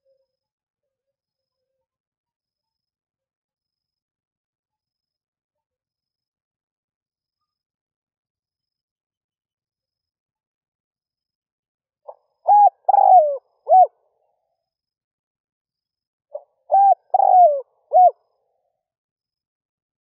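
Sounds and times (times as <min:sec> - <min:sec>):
dove cooing: 0:12.4 - 0:13.9, 0:16.4 - 0:18.2.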